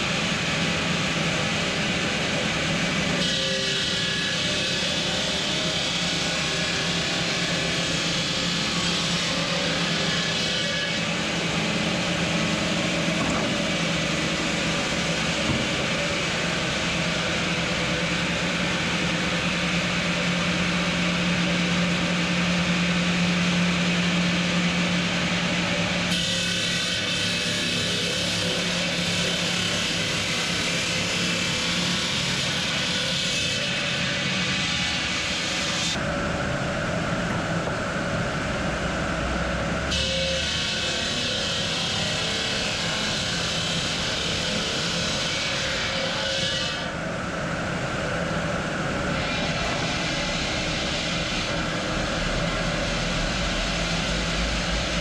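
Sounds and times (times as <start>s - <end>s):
cutting machinery hum: 0.0s - 55.0s.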